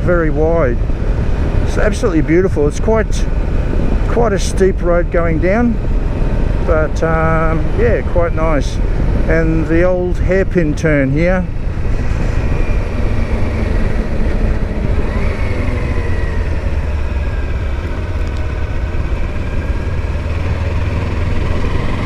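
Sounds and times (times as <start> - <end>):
wind and road noise: 0.0 - 22.0
motorcycle engine running: 11.5 - 22.0.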